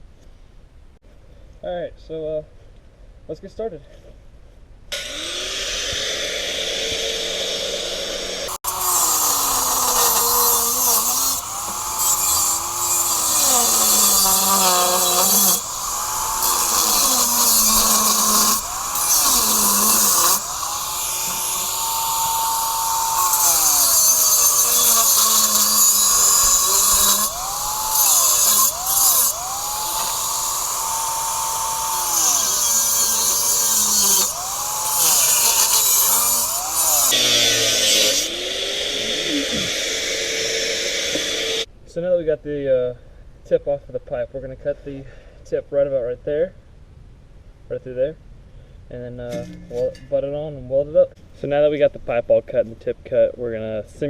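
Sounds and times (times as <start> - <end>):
angle grinder cutting metal: 4.9 - 41.7.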